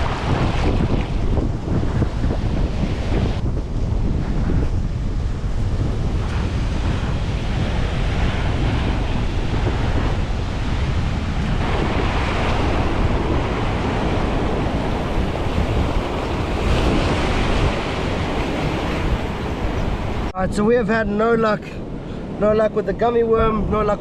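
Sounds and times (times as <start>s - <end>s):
surf breaking over rocks: 0.0s - 3.4s, 6.1s - 20.3s
wind rumbling on microphone: 0.0s - 24.0s.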